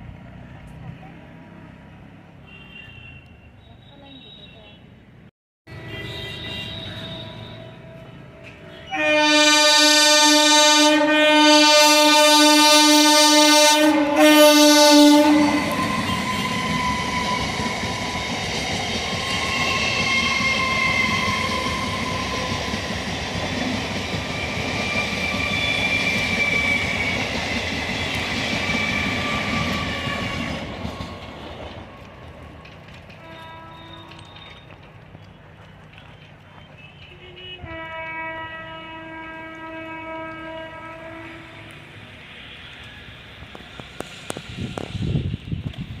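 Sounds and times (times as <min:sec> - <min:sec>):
train horn blasts: 0:05.8 - 0:17.5, 0:33.2 - 0:34.5, 0:36.8 - 0:41.8
train wheels rumbling on rails: 0:10.3 - 0:46.0.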